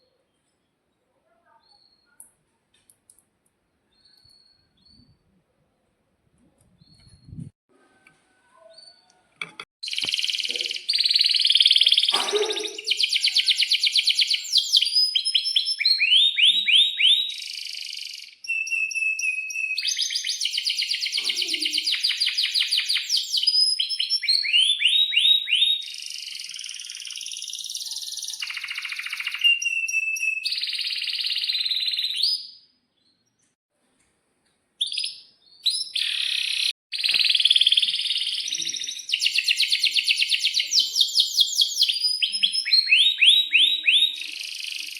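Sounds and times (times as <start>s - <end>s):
canary singing trills and chirps: 9.8s - 33.3s, 34.8s - 44.9s.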